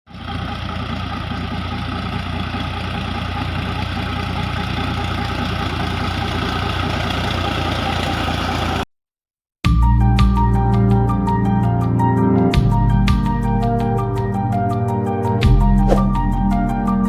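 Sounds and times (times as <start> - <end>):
tractor diesel engine running: 0.1 - 8.8.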